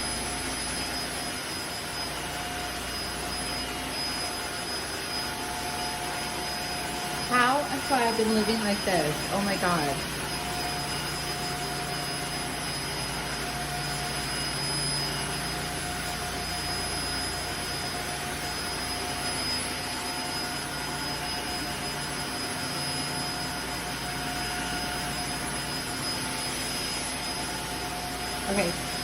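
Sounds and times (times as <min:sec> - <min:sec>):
floor cleaner motor whine: 0:00.0 - 0:29.0.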